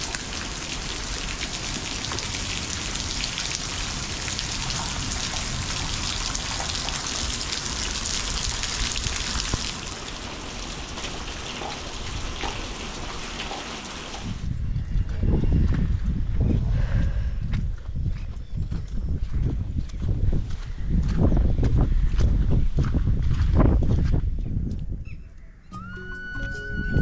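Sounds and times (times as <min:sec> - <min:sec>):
drops dripping off shed roof: 0:00.0 - 0:14.4
heavy rain falling: 0:00.0 - 0:14.4.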